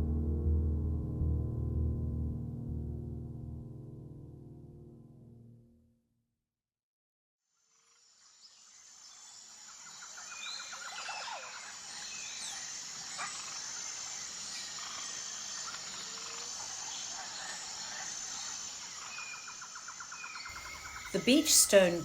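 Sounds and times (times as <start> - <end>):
high-pitched insect drone: 8.7 - 22.0
bird calls: 20.3 - 22.0.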